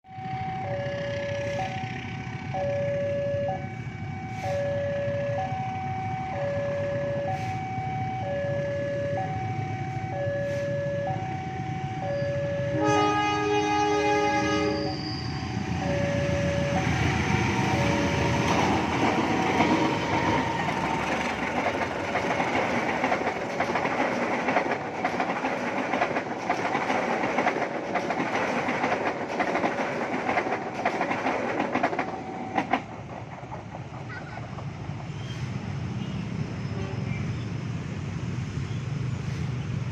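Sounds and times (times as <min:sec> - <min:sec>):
level-crossing alarm two tones: 0:00.1 - 0:13.3, 0:14.2 - 0:21.0
train rumble passing: 0:00.1 - 0:39.9
train horn: 0:03.3 - 0:04.8, 0:12.6 - 0:15.0, 0:36.0 - 0:37.2
wheel clicks over rail joints: 0:18.4 - 0:34.7.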